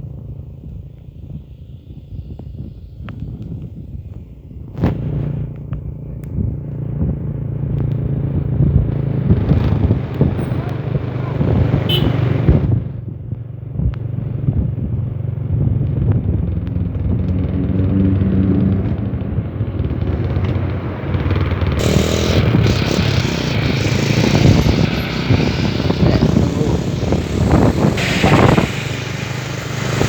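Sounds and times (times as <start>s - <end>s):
motorcycle engine rumbling: 0.0s - 30.0s
road noise: 0.0s - 30.0s
loud rushing hiss: 21.8s - 30.0s.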